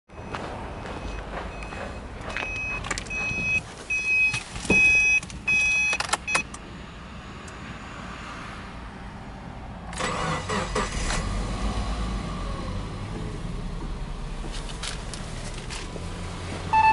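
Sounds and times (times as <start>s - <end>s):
car warning chime beeping: 0.1s - 6.6s
car engine starting and idling: 9.8s - 16.9s.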